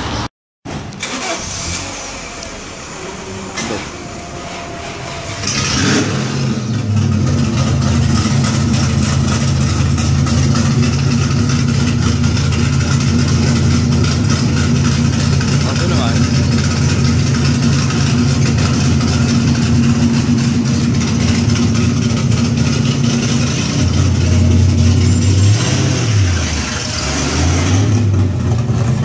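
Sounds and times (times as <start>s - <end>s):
car engine idling: 0.0s - 29.0s
car engine cranking: 0.7s - 29.0s.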